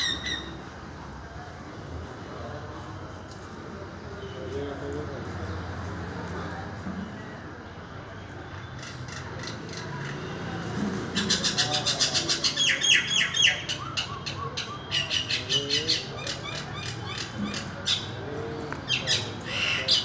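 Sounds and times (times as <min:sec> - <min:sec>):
bird squawks: 0:00.0 - 0:00.6, 0:11.1 - 0:18.2, 0:18.9 - 0:20.0
birds chirping rapidly: 0:00.0 - 0:00.6, 0:11.1 - 0:20.0.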